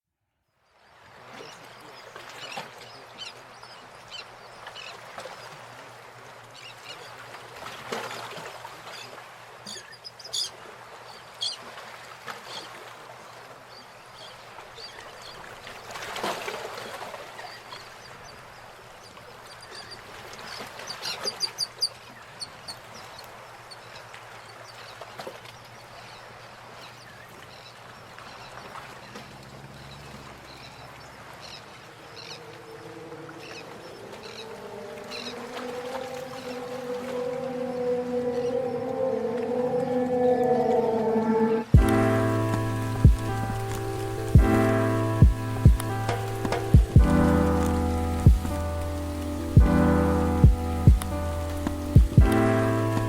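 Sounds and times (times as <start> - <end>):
birds calling: 29.7 - 53.0.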